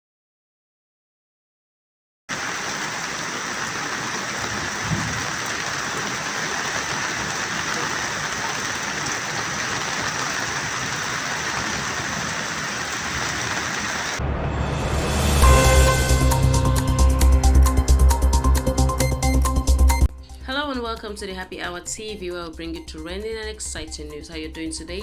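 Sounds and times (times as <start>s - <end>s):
heavy rain pouring: 2.3s - 18.4s
electronic music: 14.2s - 20.1s.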